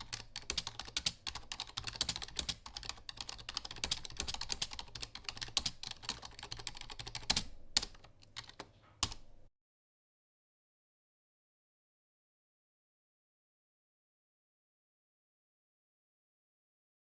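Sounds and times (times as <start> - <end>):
fast typing on keyboard: 0.0 - 9.2.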